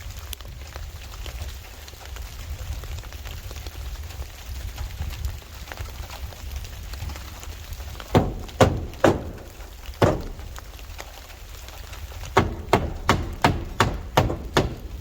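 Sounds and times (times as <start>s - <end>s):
hammer striking wood: 8.1s - 10.6s, 12.4s - 15.0s.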